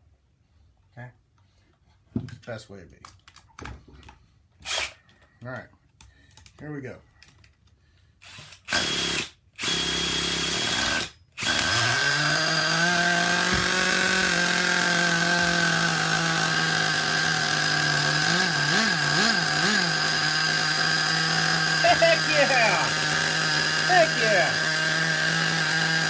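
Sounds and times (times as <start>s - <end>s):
cordless drill spinning: 4.6s - 5.2s, 8.2s - 26.0s.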